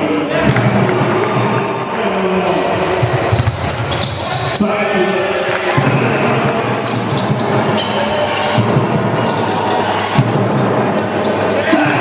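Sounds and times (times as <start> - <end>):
indoor arena noise: 0.0 - 12.0.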